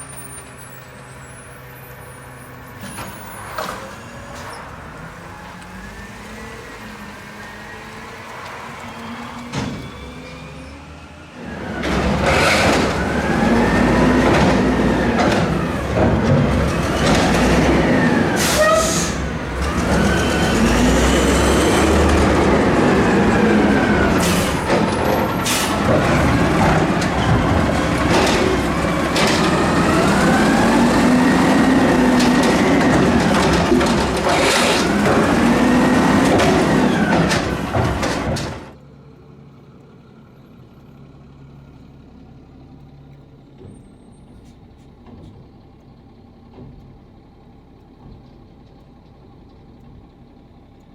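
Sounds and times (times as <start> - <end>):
heavy engine rumble: 0.0 - 50.9
emergency siren wailing: 3.1 - 38.5.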